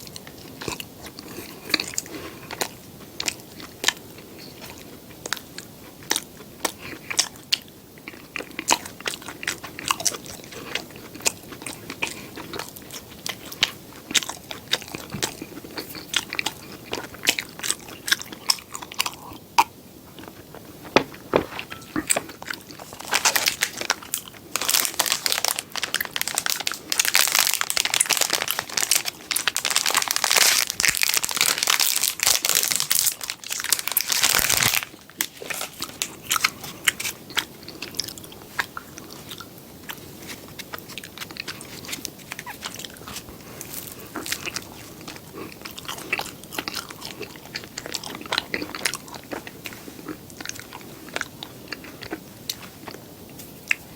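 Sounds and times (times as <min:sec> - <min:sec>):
chewing and biting: 0:00.1 - 0:53.9
loud crisp crunching: 0:20.1 - 0:38.0.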